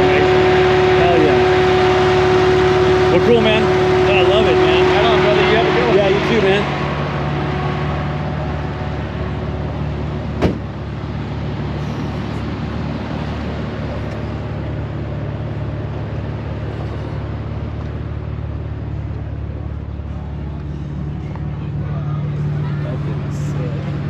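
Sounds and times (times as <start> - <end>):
car engine idling: 0.0 - 24.0
sharp knock: 10.4 - 10.6.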